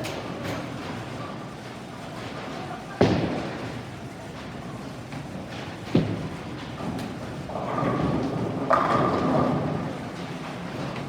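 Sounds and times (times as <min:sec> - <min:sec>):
bowling ball rolling rumble: 0:07.2 - 0:11.0.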